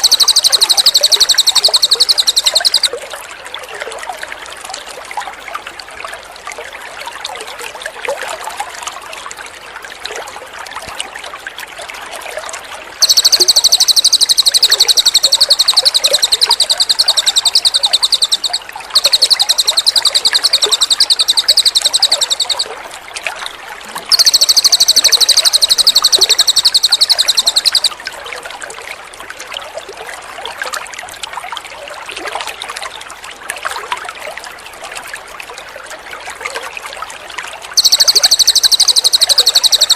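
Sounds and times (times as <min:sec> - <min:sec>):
songbird rapid high trilling: 0:00.0 - 0:02.9, 0:13.0 - 0:22.7, 0:24.1 - 0:28.0, 0:37.8 - 0:39.9
running water trickling: 0:00.0 - 0:39.9.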